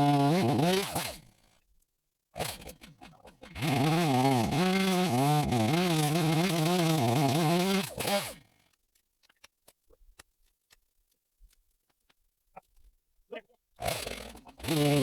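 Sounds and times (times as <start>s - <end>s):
chainsaw cutting wood: 0.0s - 1.4s, 2.4s - 8.5s, 13.8s - 15.0s.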